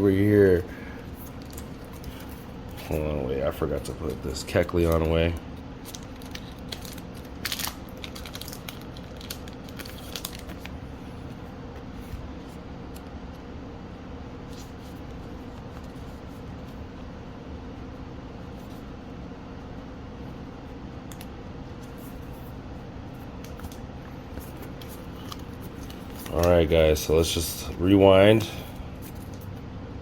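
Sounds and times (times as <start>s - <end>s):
low room hum: 0.0s - 30.0s
cards clicking and rustling: 23.4s - 27.4s.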